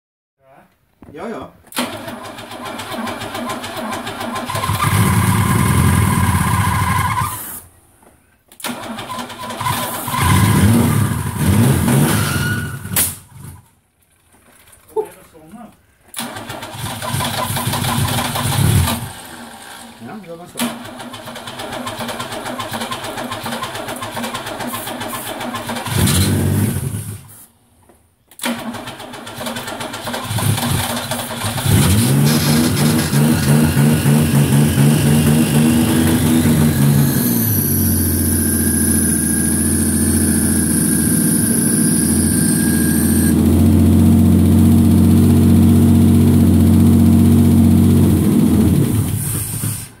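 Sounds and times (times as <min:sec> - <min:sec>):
car engine cranking and starting: 0:01.6 - 0:07.6, 0:08.5 - 0:14.7, 0:16.1 - 0:27.4, 0:28.3 - 0:50.0
car engine revving: 0:30.2 - 0:49.3.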